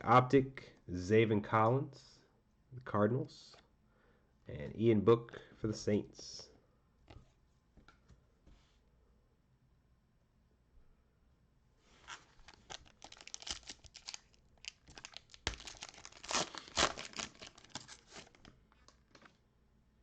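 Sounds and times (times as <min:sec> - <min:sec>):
foil wrapper tearing and crinkling: 0:12.0 - 0:19.3.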